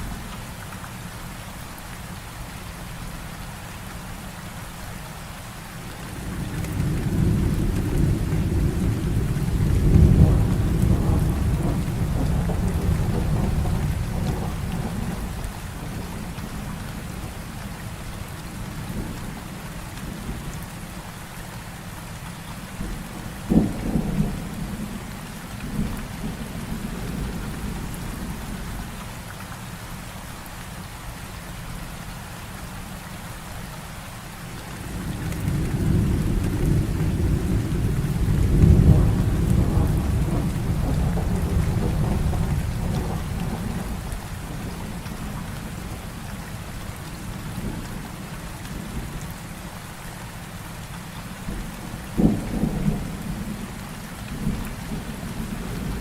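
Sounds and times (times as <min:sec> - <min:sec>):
heavy rain falling: 0:00.0 - 0:56.0
thunder rolling: 0:06.6 - 0:16.4, 0:34.8 - 0:46.0, 0:51.5 - 0:56.0.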